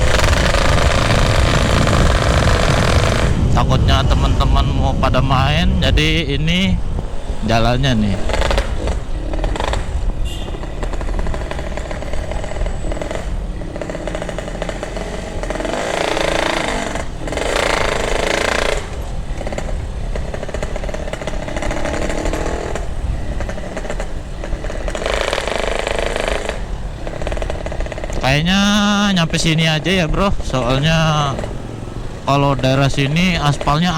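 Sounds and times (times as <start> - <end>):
motorcycle two-stroke engine: 0.0 - 33.9.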